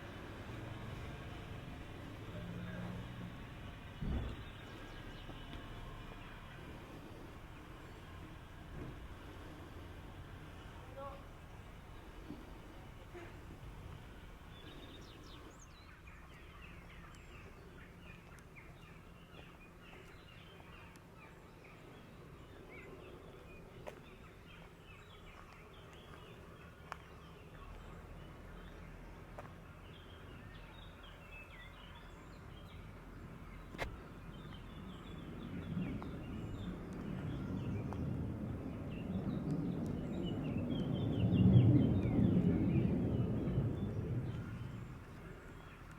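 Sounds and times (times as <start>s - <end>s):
small birds chirping: 0.0s - 45.9s
low rumble: 34.4s - 45.9s.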